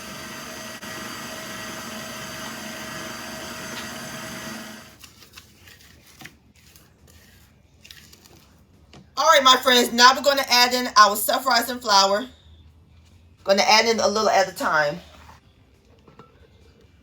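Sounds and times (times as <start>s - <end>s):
stand mixer motor hum: 0.0s - 5.0s.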